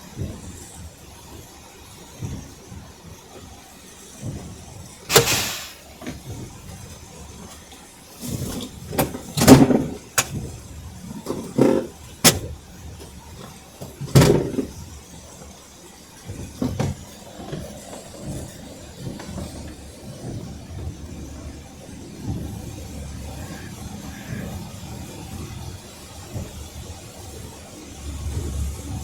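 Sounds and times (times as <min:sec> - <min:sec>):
sharp knocks and thumps: 0:05.1 - 0:05.8.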